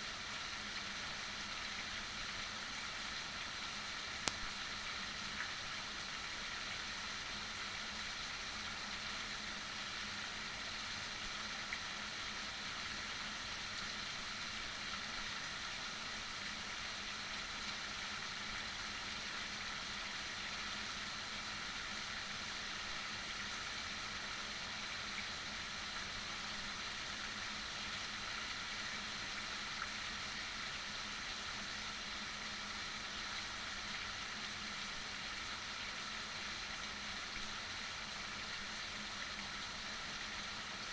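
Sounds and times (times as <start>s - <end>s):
heavy rain hiss: 0.0s - 40.9s
faint single ticks: 4.2s - 4.5s.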